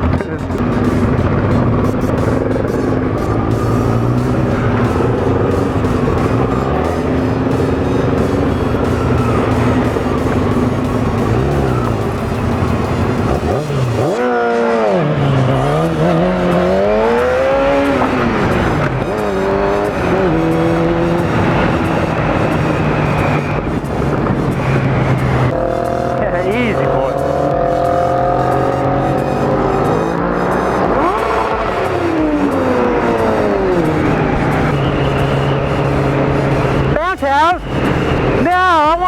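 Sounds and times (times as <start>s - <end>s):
motorcycle engine running: 0.0s - 39.0s
wind noise: 15.2s - 27.7s.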